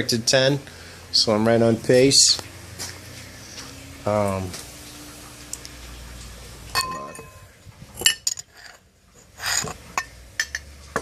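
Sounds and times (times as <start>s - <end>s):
glass jars clinking: 6.7s - 8.8s, 9.5s - 11.0s.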